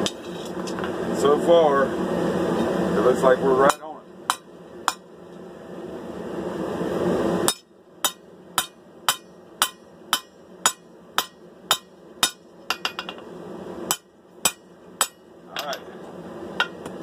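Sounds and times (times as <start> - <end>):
hammer striking steel on anvil: 3.7 - 5.1, 7.5 - 13.2, 13.9 - 15.9.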